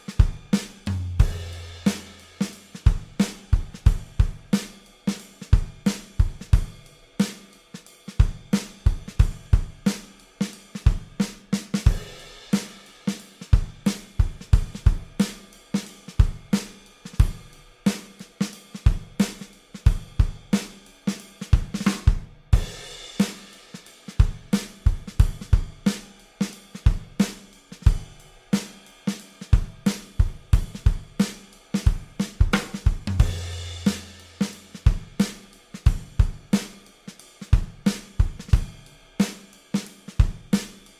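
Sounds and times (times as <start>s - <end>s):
cymbal crash: 0.0s - 2.7s, 22.6s - 24.1s, 32.6s - 34.7s
drum-led background music: 0.0s - 40.9s.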